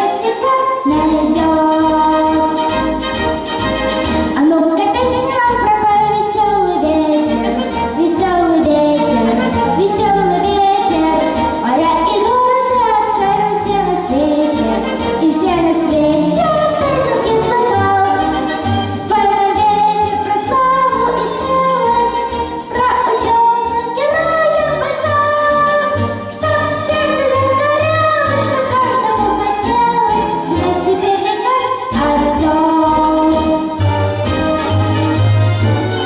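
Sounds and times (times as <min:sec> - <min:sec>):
high voice singing with vibrato: 0:00.0 - 0:02.8, 0:04.4 - 0:33.8
instrumental accompaniment with low beat: 0:32.7 - 0:36.0.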